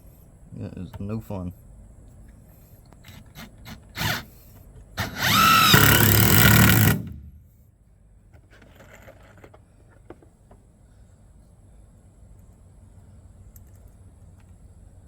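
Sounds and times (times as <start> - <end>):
power drill driving screw into wood: 3.0 - 4.4, 5.0 - 7.4.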